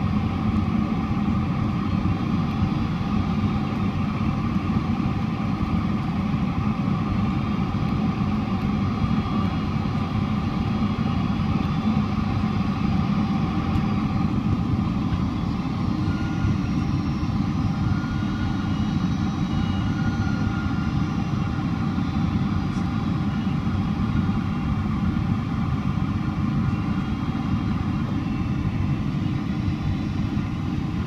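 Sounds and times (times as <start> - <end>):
jet engines rumbling in cabin: 0.0 - 31.0
thin engine whine: 8.6 - 31.0.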